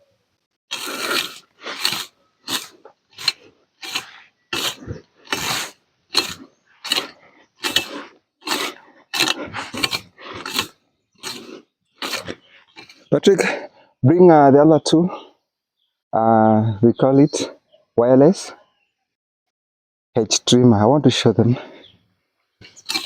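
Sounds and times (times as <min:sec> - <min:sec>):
rake scraping over grass: 0:00.7 - 0:13.1, 0:22.6 - 0:23.0.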